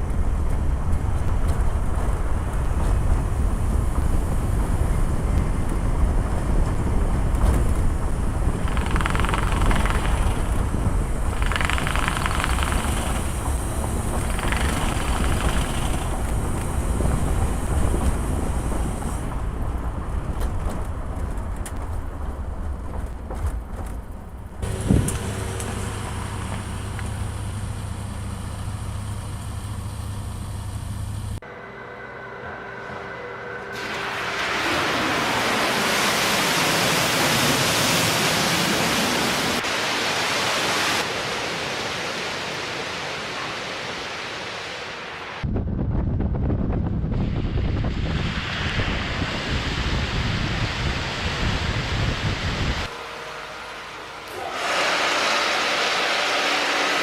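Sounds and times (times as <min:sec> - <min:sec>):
tyre and wind noise: 0:00.0 - 0:28.1, 0:45.4 - 0:53.0.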